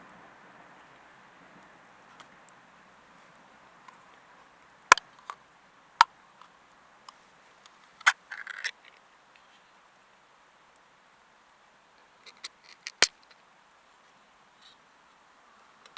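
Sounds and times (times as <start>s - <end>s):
faint background hiss: 0.0s - 15.9s.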